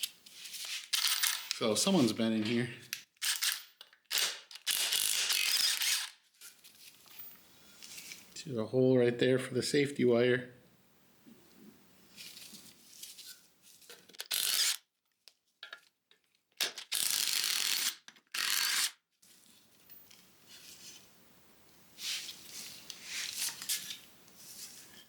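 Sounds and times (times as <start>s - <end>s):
metal parts scraping: 0.6s - 2.1s, 3.2s - 6.1s, 14.0s - 14.8s.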